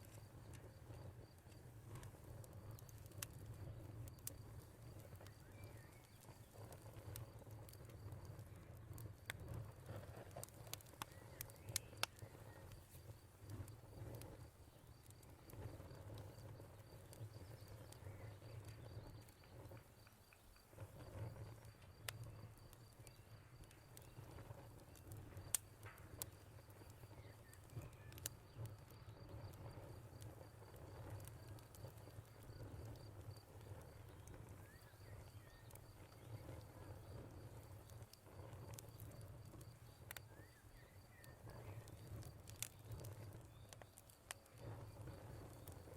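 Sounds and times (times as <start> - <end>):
fire popping sharply: 0.0 - 45.9
wood fire crackling: 0.0 - 45.9.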